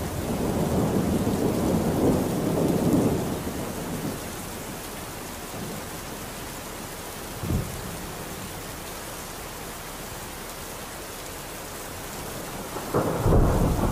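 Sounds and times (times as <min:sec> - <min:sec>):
thunder rumble: 0:00.0 - 0:04.8, 0:12.2 - 0:13.9
steady rain: 0:00.0 - 0:13.9.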